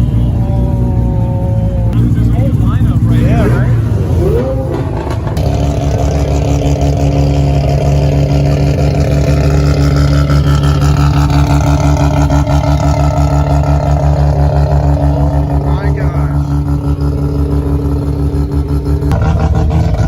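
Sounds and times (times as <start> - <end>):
loud car engine at steady revs: 0.0 - 20.0.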